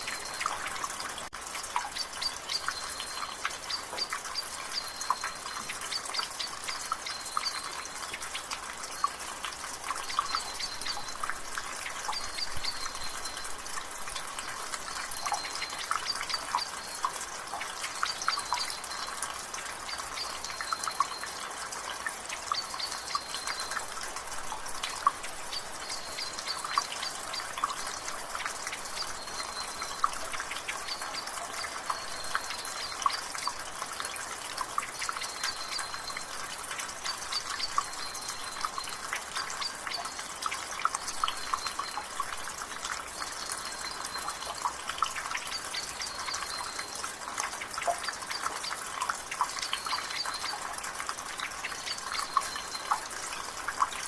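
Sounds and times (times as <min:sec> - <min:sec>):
light rain: 0:00.0 - 0:54.0
water dripping from a gutter: 0:00.0 - 0:54.0.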